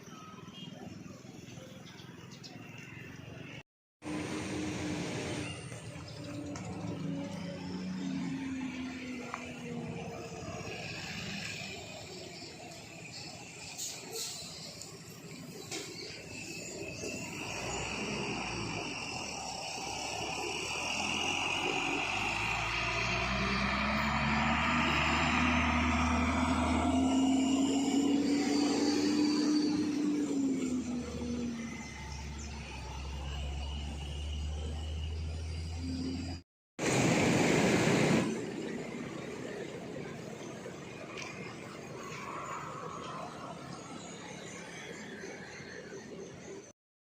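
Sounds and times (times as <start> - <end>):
engine running: 4.0 - 46.7.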